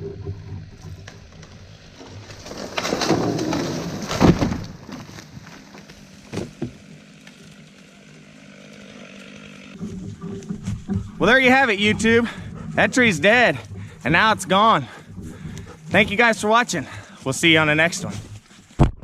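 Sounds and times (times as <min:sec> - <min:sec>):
wood cracking and splintering: 0:00.0 - 0:19.0
tree falling with heavy crash: 0:00.9 - 0:11.2.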